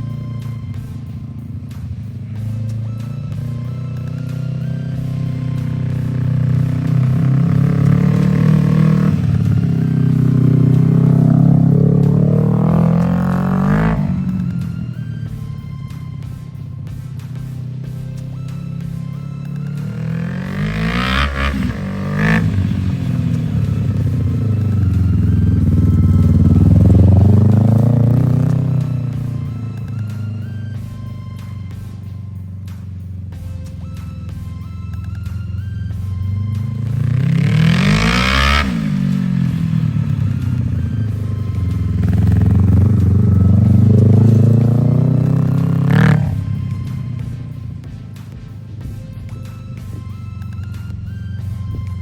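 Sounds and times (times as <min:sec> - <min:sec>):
small racing engine revving: 0:00.0 - 0:52.0.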